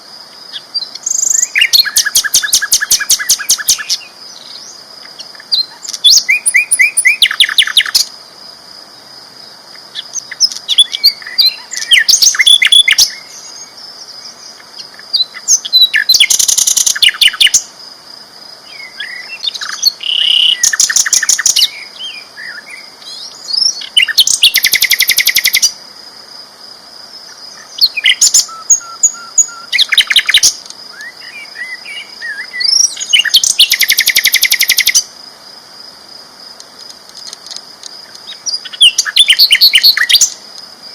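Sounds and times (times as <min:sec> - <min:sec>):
flycatcher singing trilled phrases: 0:00.5 - 0:08.1, 0:09.9 - 0:13.8, 0:14.5 - 0:17.7, 0:18.7 - 0:25.8, 0:27.3 - 0:35.1, 0:38.2 - 0:40.4.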